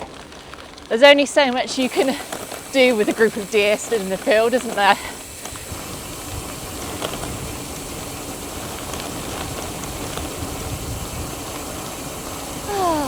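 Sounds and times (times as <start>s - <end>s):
bike tyres crunching over gravel: 0.0s - 13.0s
wind rumble on microphone: 5.6s - 13.0s.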